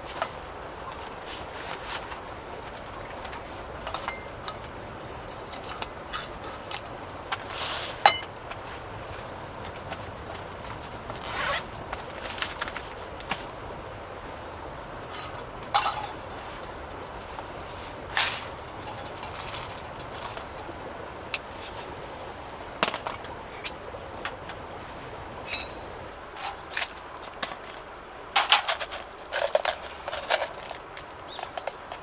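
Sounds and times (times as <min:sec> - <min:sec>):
handling clicks and taps: 0:25.5 - 0:32.0.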